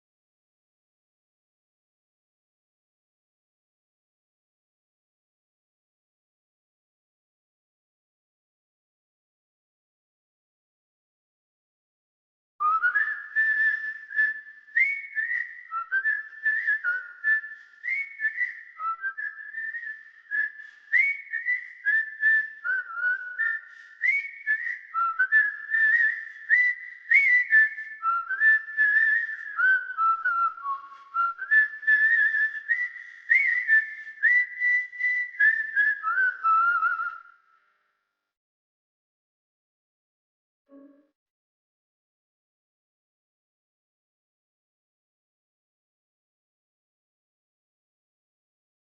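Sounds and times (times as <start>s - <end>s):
person whistling a tune: 12.6s - 37.4s, 40.7s - 41.1s.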